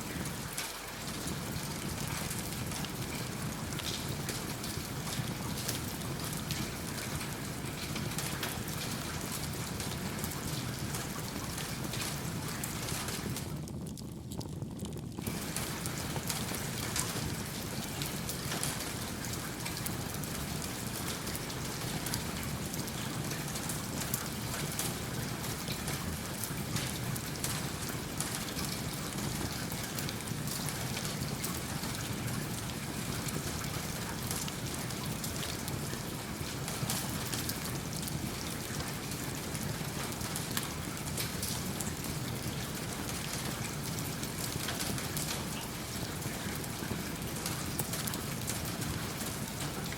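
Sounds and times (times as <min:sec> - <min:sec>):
steady rain falling: 0:00.0 - 0:49.9
wood fire crackling: 0:00.1 - 0:49.9.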